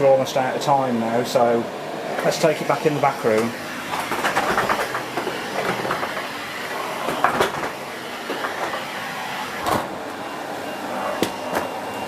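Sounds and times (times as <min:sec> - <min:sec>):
vacuum cleaner running: 0:00.0 - 0:12.0
knocks and rattles: 0:03.9 - 0:06.2.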